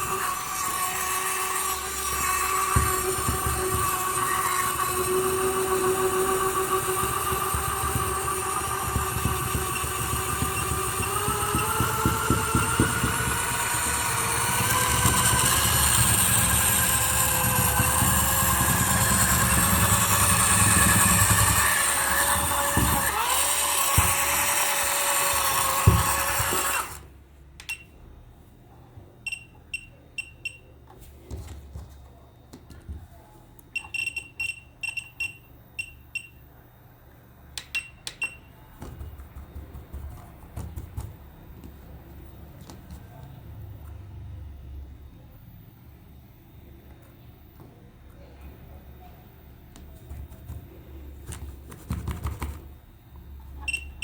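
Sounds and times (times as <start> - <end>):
toy electric motor whining: 0.0 - 27.1.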